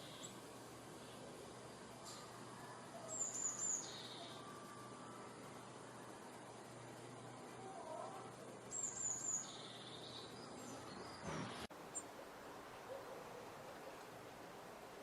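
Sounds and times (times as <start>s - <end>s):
songbirds chirping: 0.0s - 15.0s
steady hiss: 0.0s - 15.0s.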